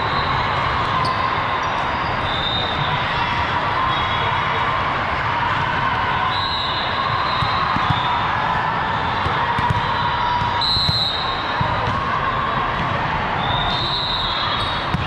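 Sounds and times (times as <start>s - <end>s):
din of a busy sports hall: 0.0s - 15.0s
balls bouncing on the court: 7.2s - 13.8s, 14.6s - 15.0s
volleyballs being hit: 9.2s - 11.0s.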